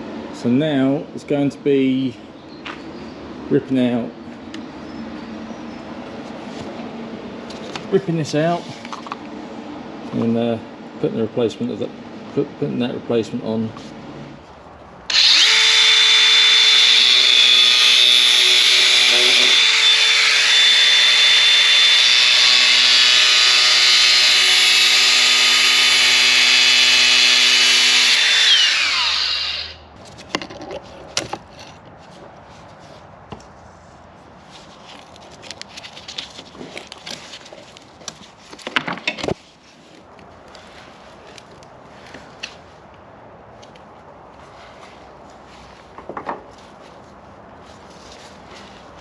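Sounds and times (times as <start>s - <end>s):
power tool cutting metal: 15.1s - 29.8s.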